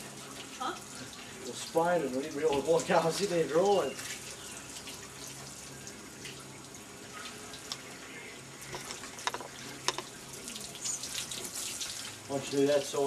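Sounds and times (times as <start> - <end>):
hose water spraying on car: 0.0 - 13.0.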